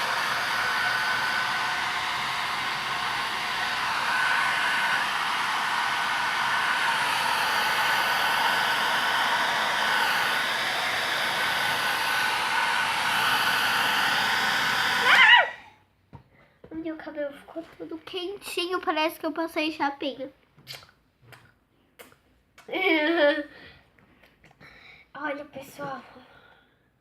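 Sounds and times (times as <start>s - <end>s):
hair dryer blowing: 0.0s - 15.7s.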